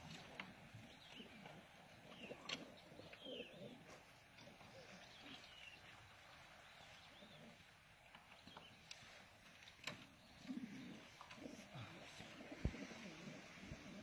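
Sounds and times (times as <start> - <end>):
faint bird chirps: 0.8 - 9.0.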